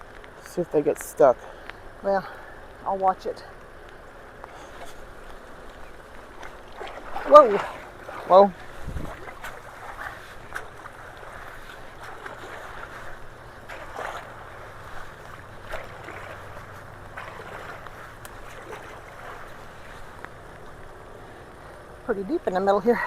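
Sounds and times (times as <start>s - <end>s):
floodwater rushing into culvert: 0.0s - 23.0s
small sharp splashes: 3.6s - 21.0s.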